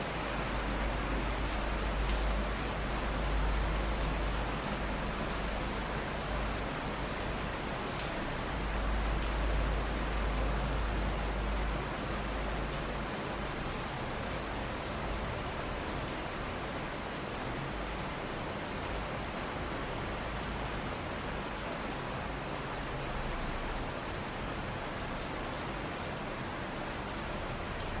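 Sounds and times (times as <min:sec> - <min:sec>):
steady rain hiss: 0:00.0 - 0:28.0.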